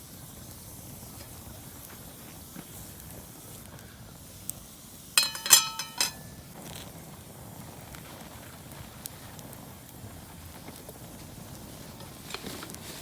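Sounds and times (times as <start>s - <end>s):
campfire crackling: 0.1s - 13.0s
ringing metal clinks: 5.2s - 6.4s.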